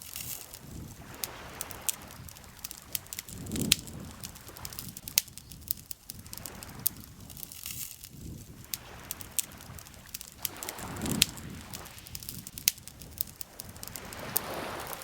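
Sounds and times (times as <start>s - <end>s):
burning wood popping: 0.0s - 15.0s
campfire crackling: 0.0s - 15.0s
lake water lapping: 0.0s - 15.0s.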